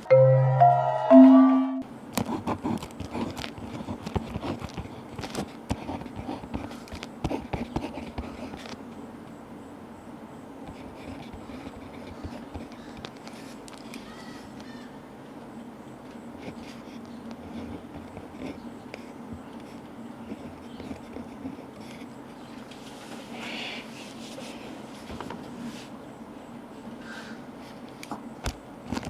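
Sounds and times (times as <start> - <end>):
pen scratching on paper: 2.2 - 8.6, 10.7 - 12.8, 20.2 - 22.1.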